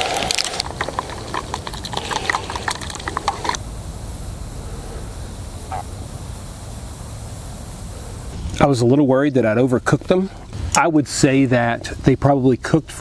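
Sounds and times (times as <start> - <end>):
campfire crackling and popping: 0.0 - 3.7
low steady rumble: 0.5 - 12.1.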